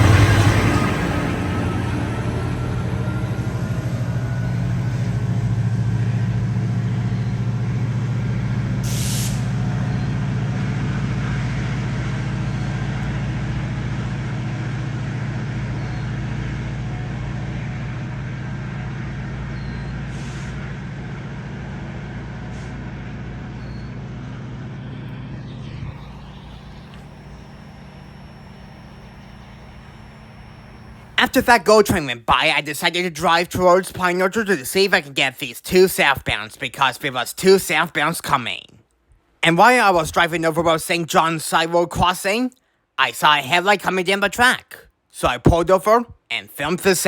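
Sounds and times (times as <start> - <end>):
diesel locomotive droning: 0.0 - 32.0
air hissing: 8.8 - 9.6.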